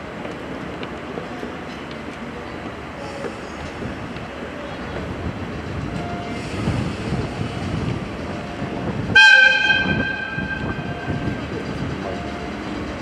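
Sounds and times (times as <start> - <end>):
train rumbling on rails: 0.0 - 13.0
shrill locomotive whistle: 9.2 - 11.1.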